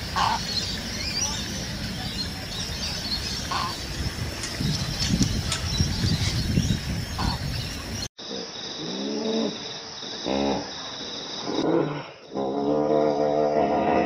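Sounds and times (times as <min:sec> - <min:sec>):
birds chirping: 0:00.0 - 0:08.1.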